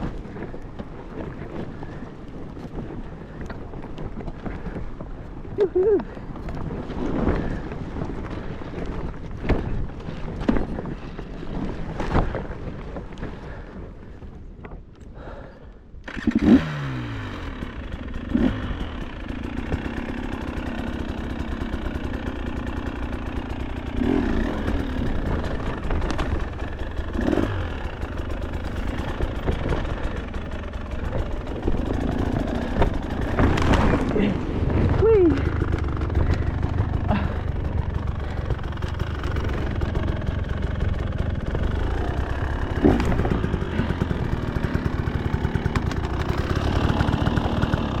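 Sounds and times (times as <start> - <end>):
bike knocking over rough ground: 0.0 - 13.4, 28.1 - 48.0
dirt bike engine revving: 16.0 - 48.0.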